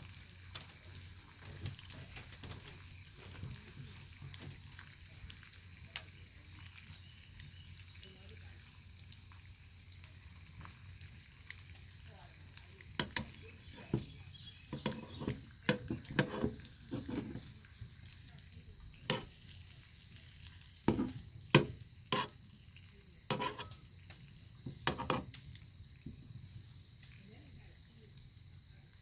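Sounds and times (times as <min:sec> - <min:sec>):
bacon sizzling in a pan: 0:00.0 - 0:29.0
fat popping and crackling: 0:12.5 - 0:22.5, 0:23.3 - 0:25.6.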